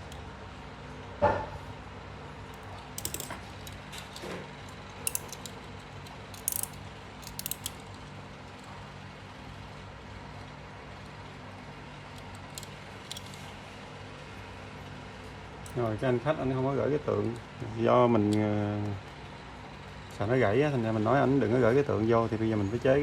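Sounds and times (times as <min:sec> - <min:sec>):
low background hum: 0:00.0 - 0:23.0
small metallic clicks and clinks: 0:02.5 - 0:08.7, 0:12.1 - 0:13.5.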